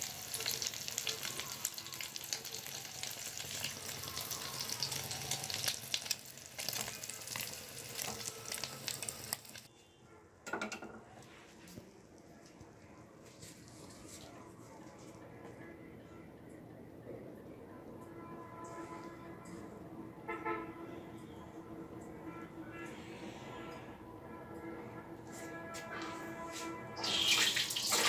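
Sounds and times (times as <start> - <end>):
egg sizzling in oil: 0.0 - 9.7, 27.0 - 28.0.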